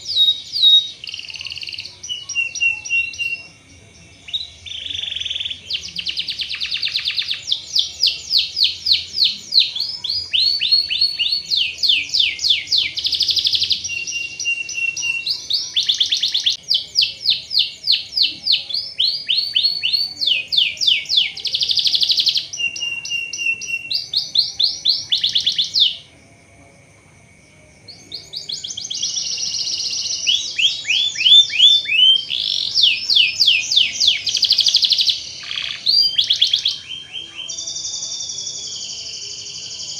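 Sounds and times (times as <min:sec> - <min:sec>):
canary singing trills: 0:00.0 - 0:26.2, 0:27.8 - 0:39.9.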